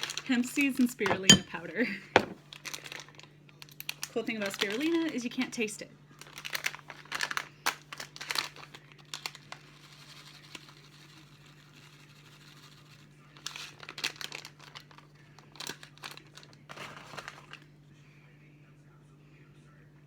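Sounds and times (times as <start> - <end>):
rustling and scraping ingredients: 0.0 - 5.5, 6.2 - 17.7
faint low hum: 0.0 - 20.0.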